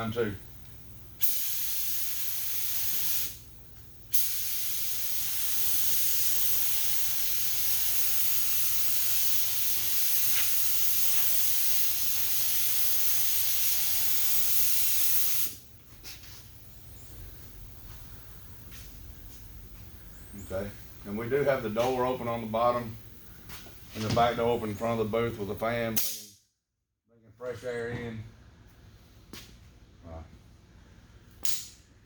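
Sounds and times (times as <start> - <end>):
air spray gun hissing: 1.2 - 19.4.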